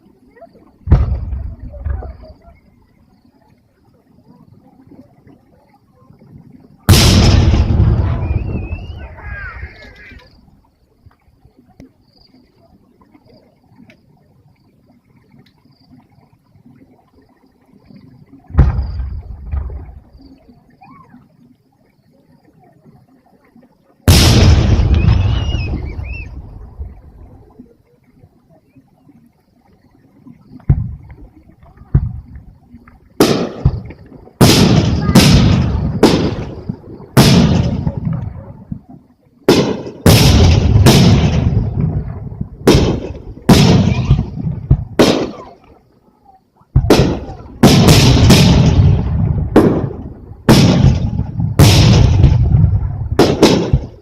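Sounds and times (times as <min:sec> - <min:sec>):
firework shells bursting: 0:33.2 - 0:38.2, 0:39.5 - 0:45.4, 0:46.8 - 0:54.0.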